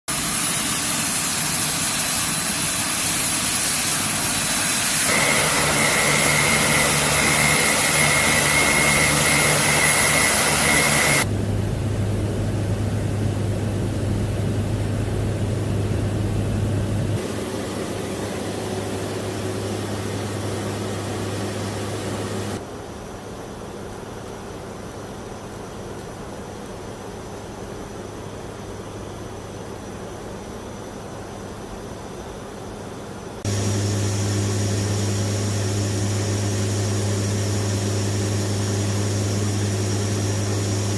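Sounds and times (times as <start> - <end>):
high engine whine: 3.8 - 22.7, 33.4 - 40.9
turboprop engines droning: 4.8 - 22.6, 33.4 - 40.9.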